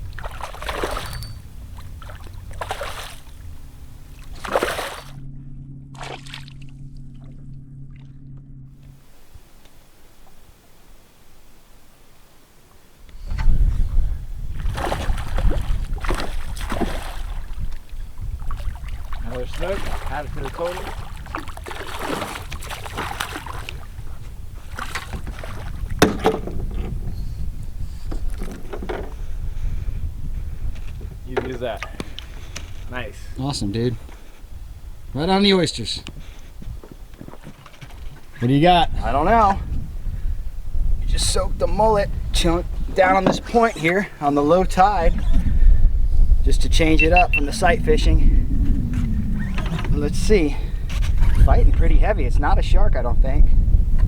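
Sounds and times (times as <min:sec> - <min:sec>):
water splashing against boat: 0:00.0 - 0:05.2, 0:05.9 - 0:08.2, 0:08.9 - 0:45.7, 0:46.4 - 0:52.0
steady low hum: 0:00.0 - 0:31.2
wind: 0:00.0 - 0:54.0.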